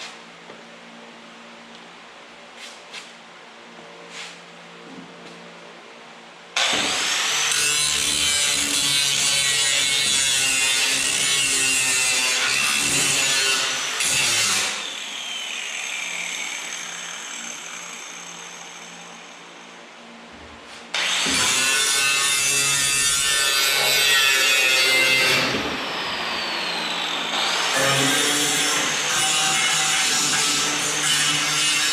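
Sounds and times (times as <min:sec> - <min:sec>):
power grinder grinding steel: 0:06.6 - 0:19.2, 0:20.8 - 0:31.9.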